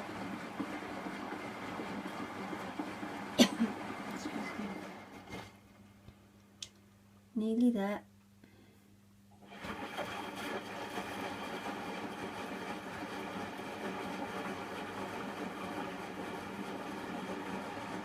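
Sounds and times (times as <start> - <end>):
washing machine drum spinning: 0.0 - 5.7, 9.4 - 18.0.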